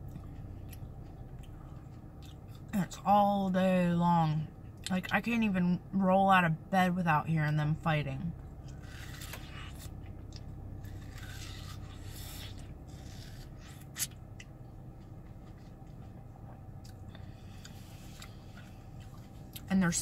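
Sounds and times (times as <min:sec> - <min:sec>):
chewing watermelon: 0:00.0 - 0:03.0, 0:08.4 - 0:19.7
steady low hum: 0:00.0 - 0:20.0.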